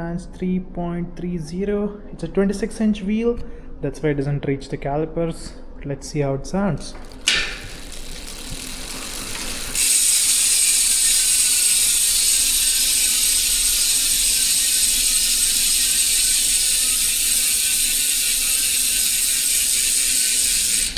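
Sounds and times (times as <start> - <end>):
bicycle freehub ratcheting buzz: 6.9 - 20.9.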